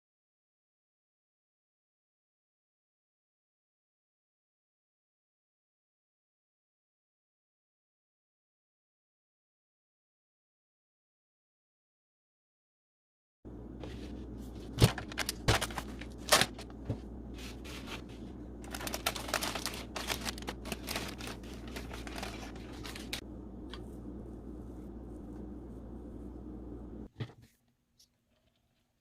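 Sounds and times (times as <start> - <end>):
steady low hum: 13.5 - 27.4
crinkling and scraping: 13.8 - 28.9.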